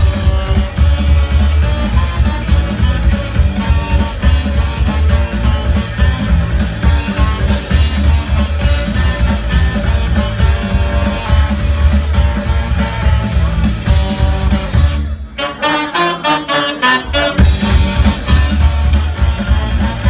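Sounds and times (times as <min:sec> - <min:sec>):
rock band instrumental: 0:00.0 - 0:20.0.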